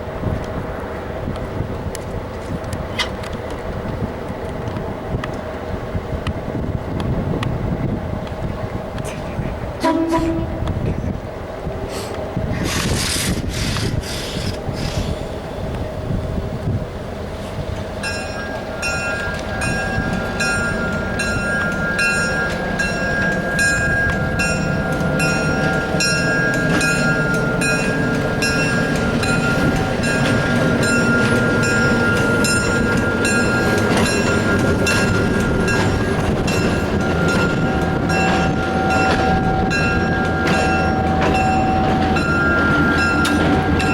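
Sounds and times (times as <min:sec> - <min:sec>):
passenger train rumbling: 0:00.0 - 0:43.9
bell ringing steadily: 0:18.0 - 0:43.9.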